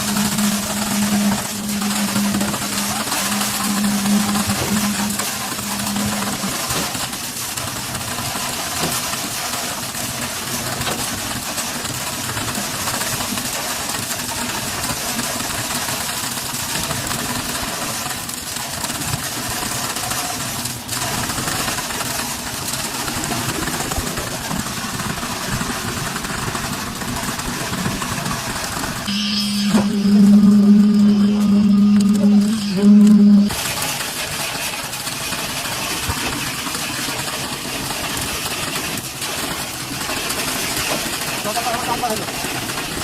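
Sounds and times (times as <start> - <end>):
diesel engine running: 0.0 - 7.4, 23.2 - 33.6.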